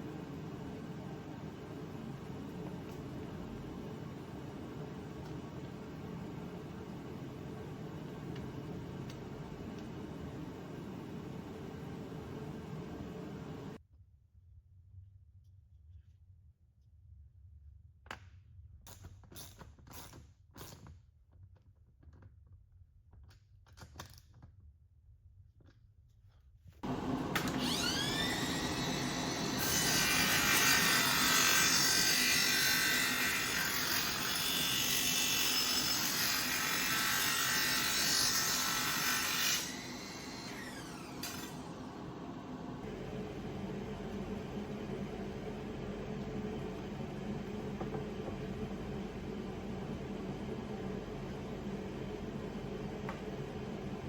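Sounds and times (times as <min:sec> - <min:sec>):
power tool spinning shrill: 0:26.9 - 0:32.3, 0:37.5 - 0:42.0.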